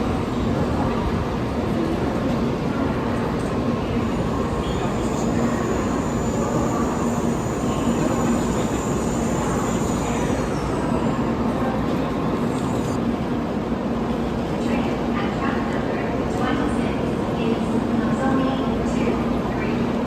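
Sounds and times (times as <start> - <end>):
train rushing noise: 0.0 - 18.1
faint high whine: 4.4 - 13.0.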